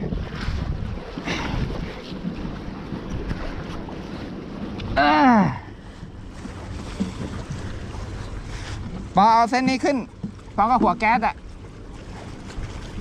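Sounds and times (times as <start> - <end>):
wind rushing over microphone: 0.0 - 3.6
sea noise: 0.0 - 13.0.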